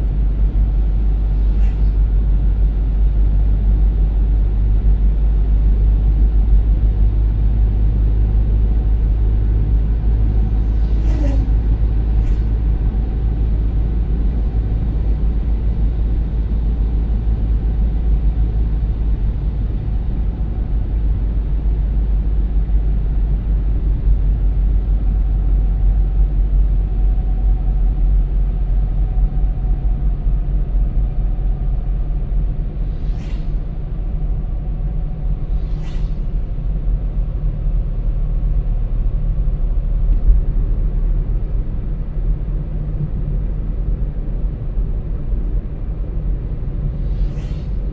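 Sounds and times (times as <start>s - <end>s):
car road and engine rumble: 0.0s - 47.9s
short hisses: 1.5s - 2.0s, 10.8s - 11.6s, 12.2s - 12.5s, 32.9s - 33.7s, 35.5s - 36.5s, 47.1s - 47.9s.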